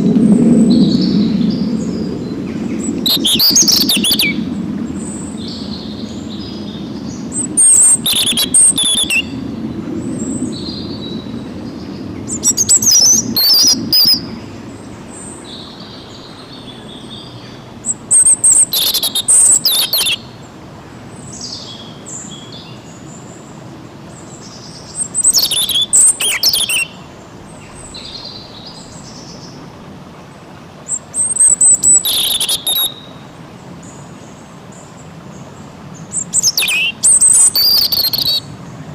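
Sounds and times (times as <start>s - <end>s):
low background rush: 0.0s - 38.9s
songbird singing: 0.0s - 38.9s
soft bird chirps: 2.8s - 4.4s, 5.0s - 9.3s, 15.1s - 20.2s, 24.3s - 29.6s, 30.9s - 33.2s, 33.8s - 38.5s.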